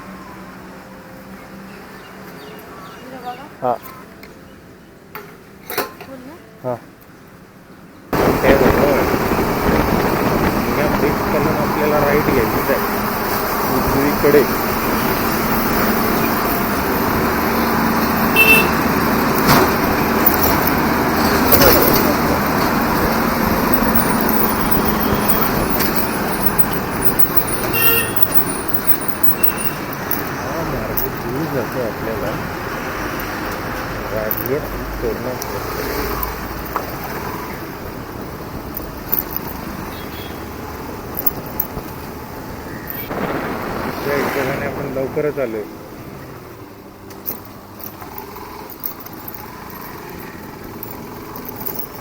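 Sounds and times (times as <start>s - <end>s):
road and wind rush: 7.1s - 52.0s
motorcycle engine: 8.2s - 44.3s, 46.3s - 52.0s
horn beep: 18.0s - 20.3s, 23.8s - 30.0s.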